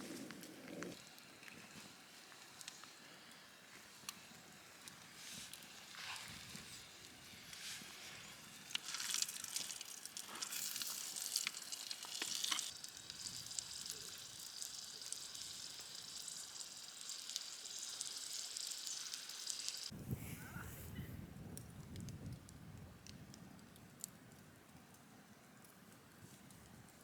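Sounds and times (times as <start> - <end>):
food sizzling in a pan: 1.0 - 20.0.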